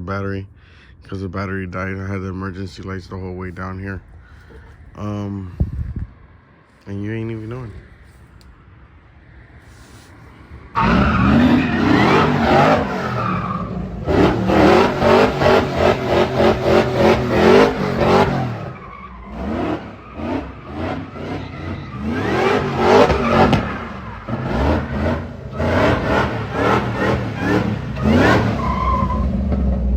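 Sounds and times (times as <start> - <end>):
tires squealing: 9.2 - 29.9
car engine revving hard: 10.8 - 29.9.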